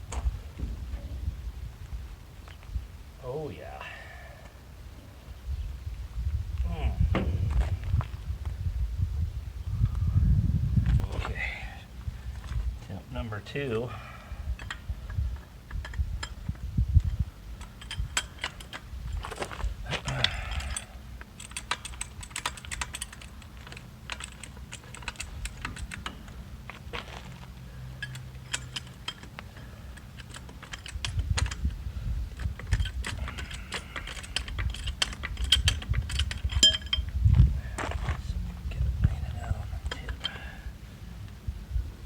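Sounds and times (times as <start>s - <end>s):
handling knocks and bumps: 6.6s - 8.5s, 14.6s - 40.4s
metal hand tools clinking: 17.6s - 27.4s, 28.0s - 31.7s, 32.4s - 37.2s.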